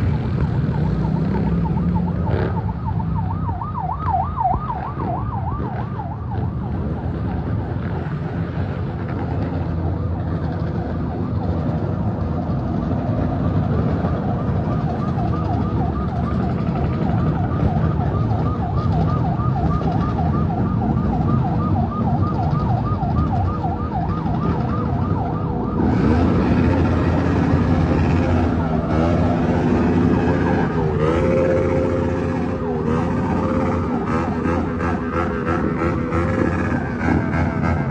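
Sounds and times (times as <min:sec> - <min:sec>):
siren yelping: 0:00.0 - 0:08.5, 0:09.6 - 0:37.9
traffic engines rumbling: 0:00.0 - 0:37.9.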